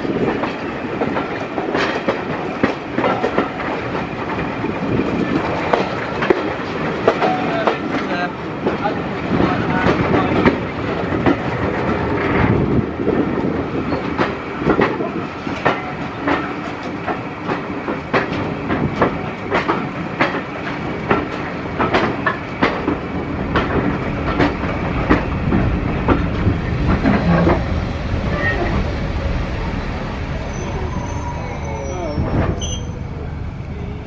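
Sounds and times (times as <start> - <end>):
train coach rumbling: 0.0 - 34.0
wheels clicking over rail joints: 0.1 - 12.6, 13.4 - 28.8.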